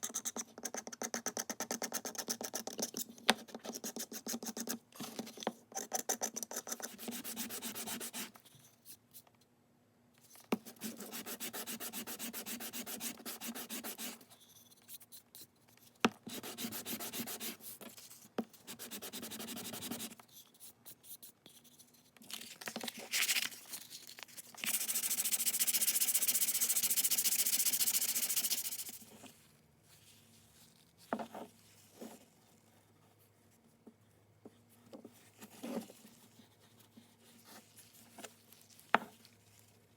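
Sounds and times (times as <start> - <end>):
sandpaper rubbing wood: 10.8 - 14.2.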